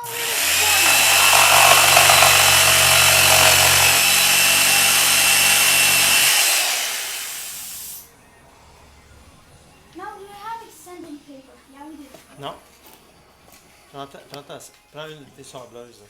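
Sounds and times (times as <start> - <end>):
electric saw cutting wood: 0.0 - 7.9.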